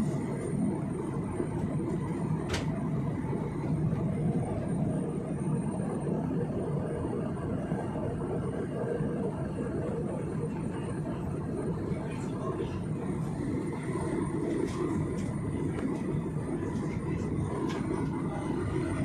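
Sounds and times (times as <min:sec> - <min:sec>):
airliner cabin engine noise: 0:00.0 - 0:19.0.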